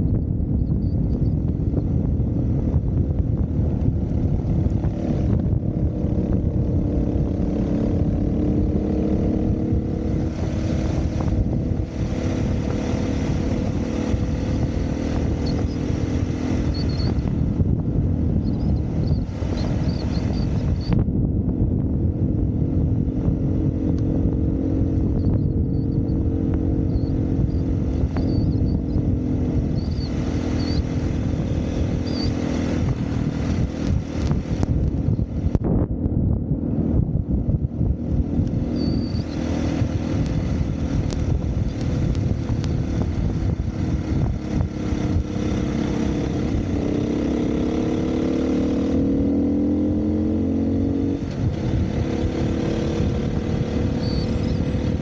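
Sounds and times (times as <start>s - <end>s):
dirt bike engine revving: 4.6s - 17.5s, 38.1s - 55.0s.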